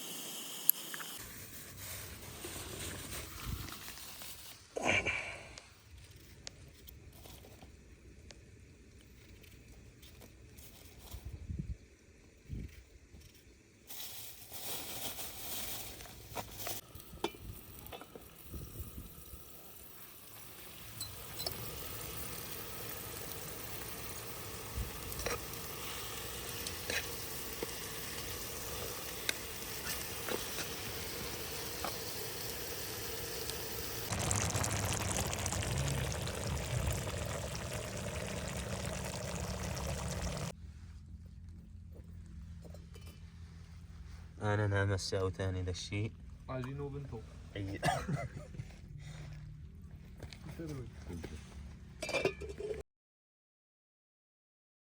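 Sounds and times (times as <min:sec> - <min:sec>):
food sizzling in a pot: 0:00.0 - 0:02.9, 0:16.6 - 0:40.5.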